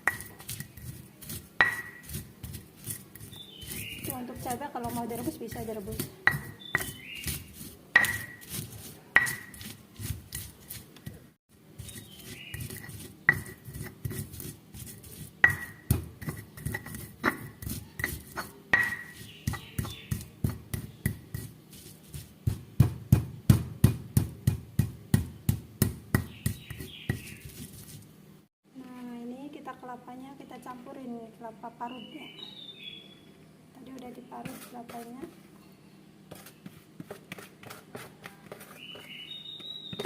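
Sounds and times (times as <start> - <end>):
pestle pounding in mortar: 0.0 - 11.2, 11.8 - 28.0, 36.3 - 40.0.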